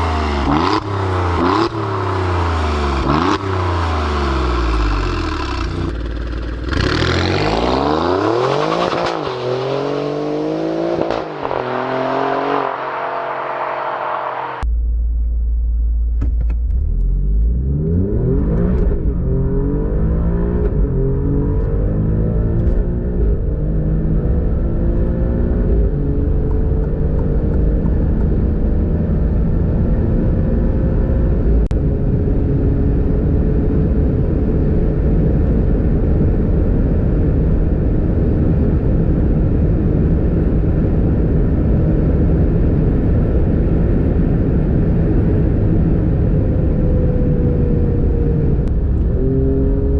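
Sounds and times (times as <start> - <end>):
car engine accelerating: 0.0 - 31.8
road and wind noise: 0.0 - 49.9.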